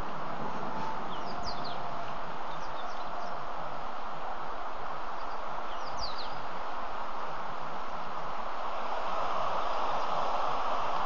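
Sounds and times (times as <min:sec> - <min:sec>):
outdoor hiss: 0:00.0 - 0:11.0
downward-sweeping bird chirps: 0:00.5 - 0:03.5, 0:05.2 - 0:06.4.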